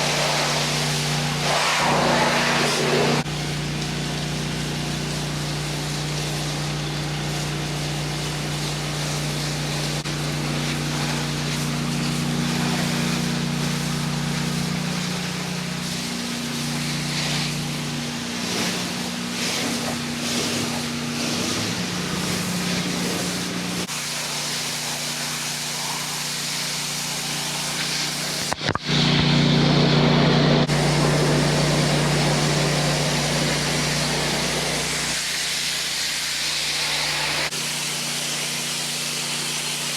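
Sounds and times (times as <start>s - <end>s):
water spray hissing: 0.0s - 29.2s, 30.6s - 39.9s
pressure washer engine running: 0.0s - 39.9s.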